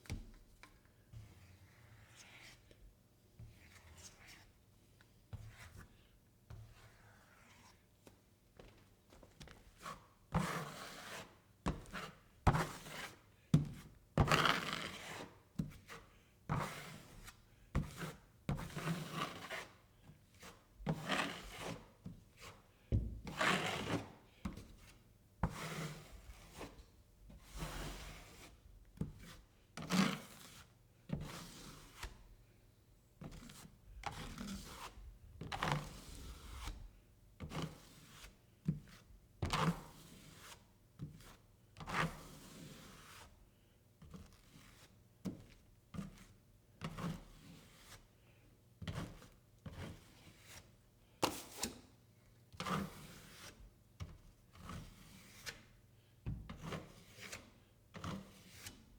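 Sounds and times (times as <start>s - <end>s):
drywall knife scraping: 54.5s - 55.5s.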